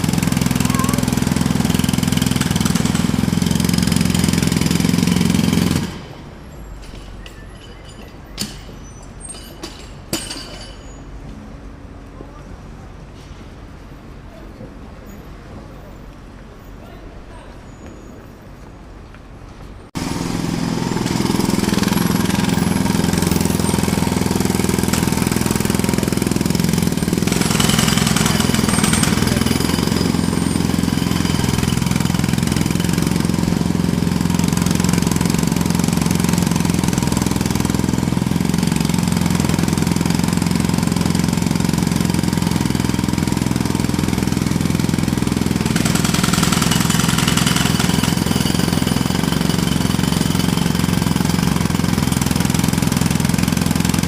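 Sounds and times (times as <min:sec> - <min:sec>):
jackhammer hammering: 0:00.0 - 0:06.3, 0:09.4 - 0:10.9, 0:20.0 - 0:54.0.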